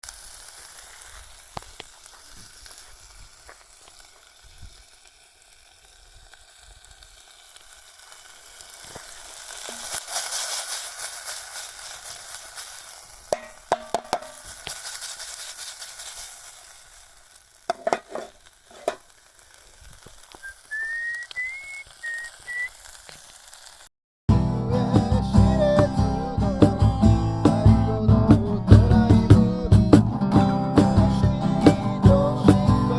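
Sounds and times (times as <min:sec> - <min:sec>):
sharp pops from fire: 0:00.0 - 0:23.9
bonfire crackling and hissing: 0:00.0 - 0:32.9
thin whistle: 0:20.4 - 0:22.8.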